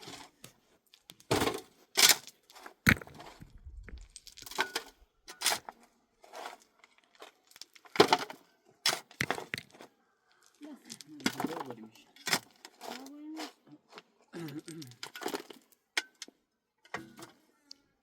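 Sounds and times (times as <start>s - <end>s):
sharp cracks and snaps: 6.8s - 8.0s.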